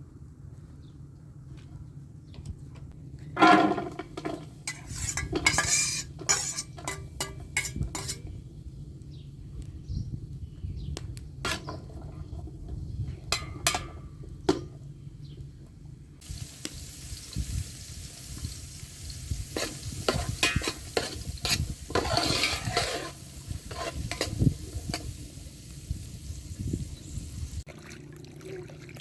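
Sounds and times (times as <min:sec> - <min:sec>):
food sizzling in a pot: 0:04.7 - 0:08.2, 0:16.2 - 0:27.6.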